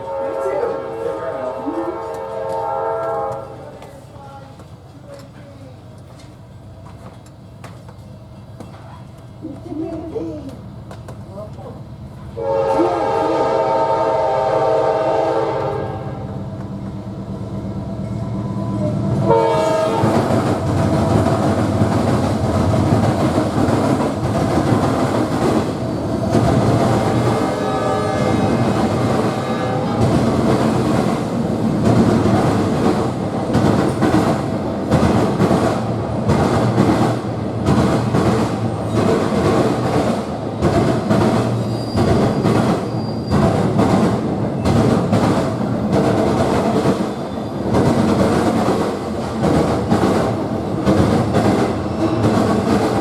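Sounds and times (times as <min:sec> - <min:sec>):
train horn blasts: 0:00.0 - 0:03.8, 0:12.3 - 0:16.4, 0:18.6 - 0:20.4, 0:27.0 - 0:30.4
train wheels clattering on rails: 0:01.8 - 0:13.5, 0:18.0 - 0:53.0.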